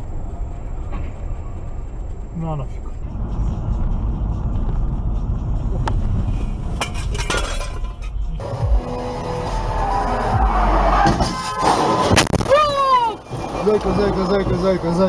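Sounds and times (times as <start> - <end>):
road rumble: 0.0 - 15.0
music: 8.1 - 12.1
car crash and breaking glass: 9.9 - 15.0.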